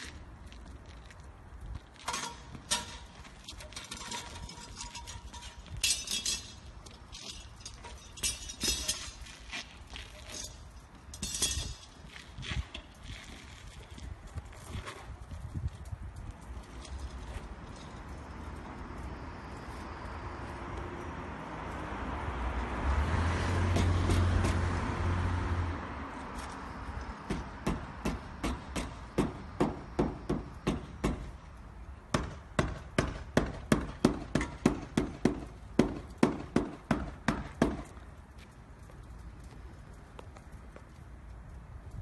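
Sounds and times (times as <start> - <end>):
vehicle passing: 17.3 - 27.6.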